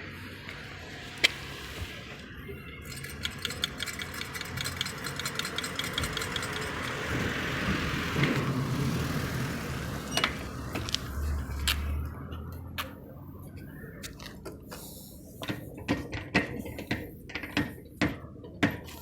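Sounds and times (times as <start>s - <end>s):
rapid sharp engine ticking: 2.9s - 7.6s
engine running: 2.9s - 12.1s.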